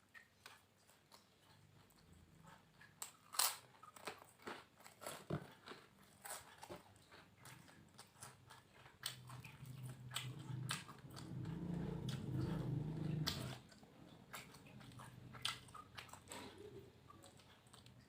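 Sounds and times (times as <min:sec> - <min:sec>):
chewing and crunching food: 0:00.0 - 0:18.0
low steady hum: 0:06.9 - 0:18.0.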